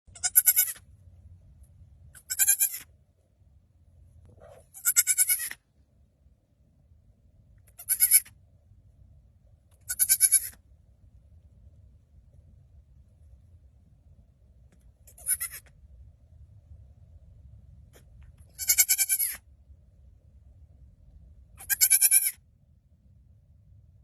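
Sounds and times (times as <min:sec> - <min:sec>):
animal bleating: 0:00.1 - 0:00.8, 0:02.2 - 0:02.9, 0:04.7 - 0:05.6, 0:07.8 - 0:08.3, 0:09.9 - 0:10.6, 0:15.1 - 0:15.7, 0:18.5 - 0:19.4, 0:21.6 - 0:22.4.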